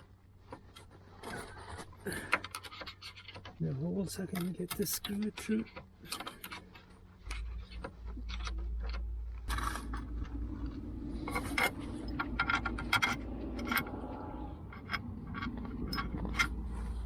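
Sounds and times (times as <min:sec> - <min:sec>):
metal parts clicking and clinking: 0:04.2 - 0:17.0
metal scraping: 0:04.6 - 0:17.0.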